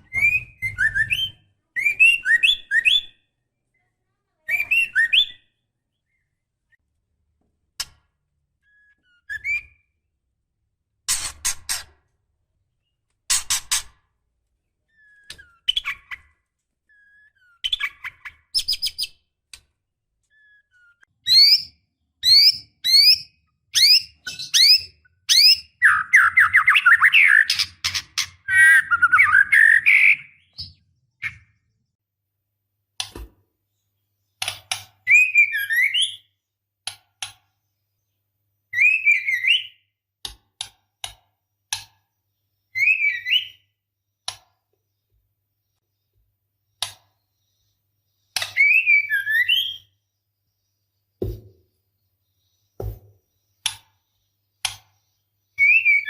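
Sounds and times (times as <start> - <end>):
bird whistled calls: 48.6 - 49.9, 55.6 - 56.0.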